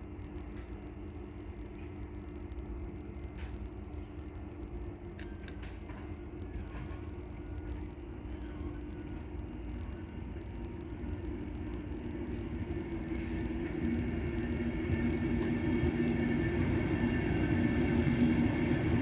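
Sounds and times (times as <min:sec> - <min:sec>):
sharp clicks: 0:05.1 - 0:05.8.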